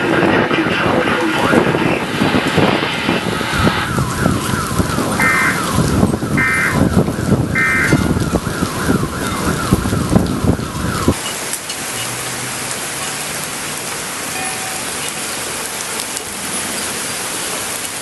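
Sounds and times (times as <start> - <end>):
heavy rain hiss: 0.0 - 18.0
car alarm sweeping tone: 2.9 - 11.4.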